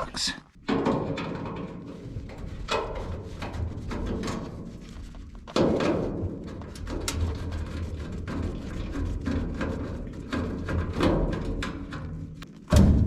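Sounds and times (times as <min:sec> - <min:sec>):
heavy thud: 0:12.7 - 0:13.0.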